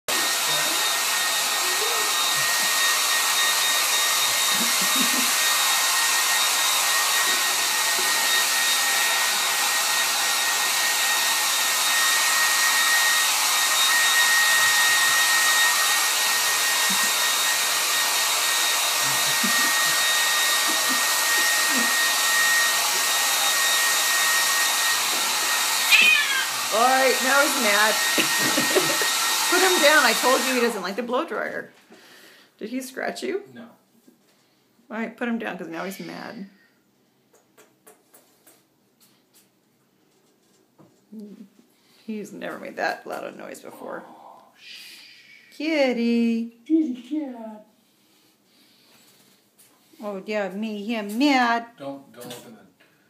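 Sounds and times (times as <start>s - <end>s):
hair dryer running: 0.1s - 31.6s, 42.1s - 43.7s.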